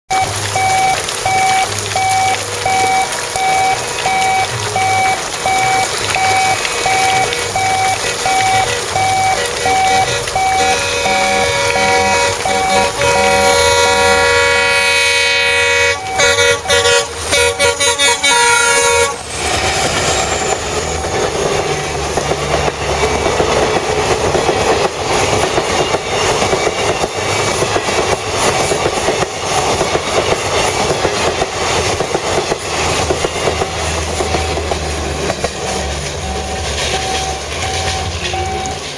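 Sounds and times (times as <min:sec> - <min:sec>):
heavy rain: 0:00.1 - 0:38.9
locomotive horn blasts: 0:00.2 - 0:19.3
train wheels clattering over rails: 0:19.2 - 0:38.9.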